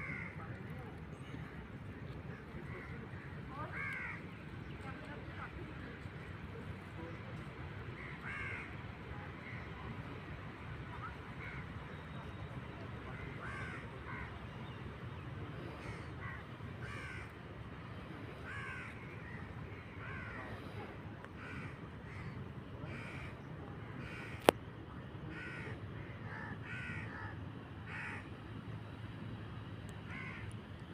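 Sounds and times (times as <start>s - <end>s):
crows cawing: 0.0s - 0.4s, 3.7s - 4.2s, 8.0s - 8.7s, 13.2s - 14.3s, 15.8s - 17.3s, 18.4s - 20.5s, 21.4s - 23.3s, 25.3s - 28.3s, 30.1s - 30.5s
low background noise: 0.0s - 30.9s.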